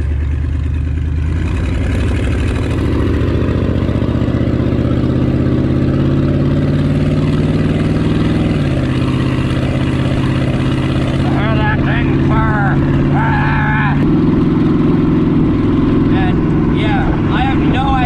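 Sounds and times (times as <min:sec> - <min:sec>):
vehicle engine accelerating: 0:00.0 - 0:18.0.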